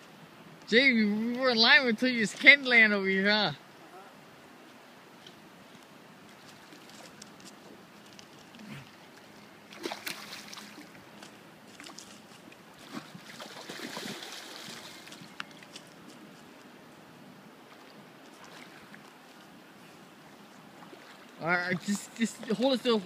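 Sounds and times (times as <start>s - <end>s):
river rushing: 1.5s - 23.0s
water splashing: 8.5s - 15.9s, 17.7s - 19.5s, 20.8s - 23.0s.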